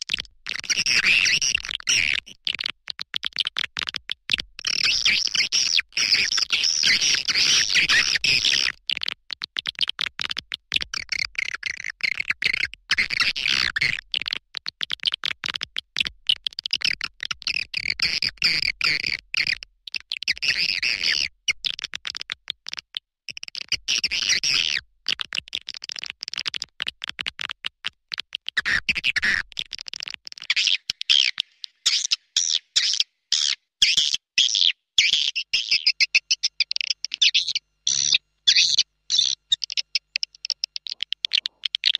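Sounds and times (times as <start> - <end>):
swiftlets twittering: 35.3 - 41.9.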